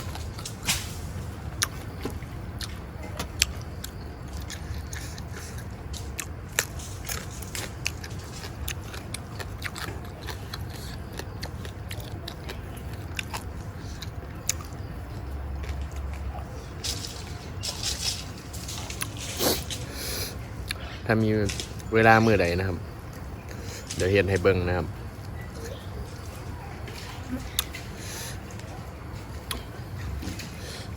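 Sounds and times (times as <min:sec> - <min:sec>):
person chewing food: 0:02.6 - 0:16.5.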